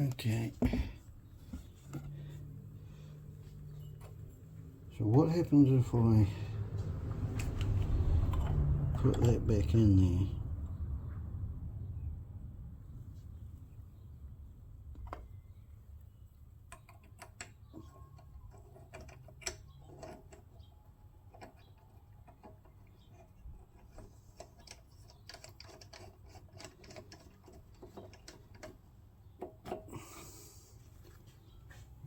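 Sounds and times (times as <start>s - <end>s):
small parts clicking and tapping: 16.6s - 30.0s.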